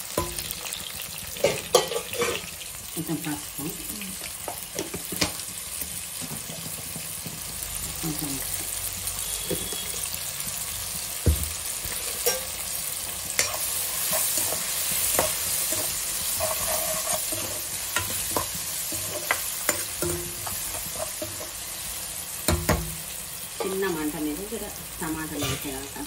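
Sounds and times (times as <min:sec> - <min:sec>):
vegetables sizzling in oil: 0:00.0 - 0:26.0
spatula knocking against pan: 0:22.5 - 0:23.0.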